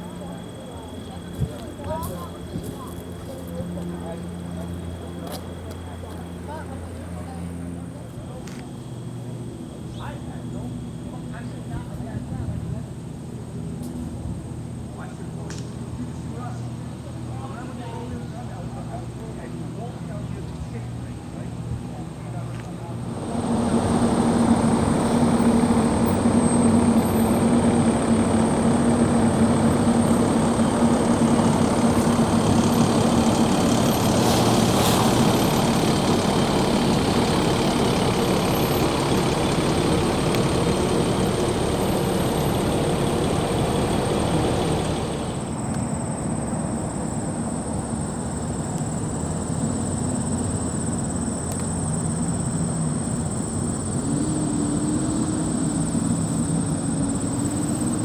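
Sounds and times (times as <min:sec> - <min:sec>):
engine-like drone: 0:22.8 - 0:58.0.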